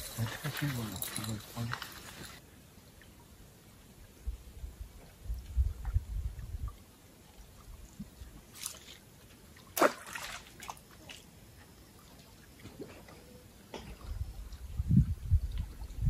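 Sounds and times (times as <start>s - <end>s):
faint drips and ticks: 0.0s - 2.4s, 15.4s - 16.0s
water splashes: 6.4s - 13.2s.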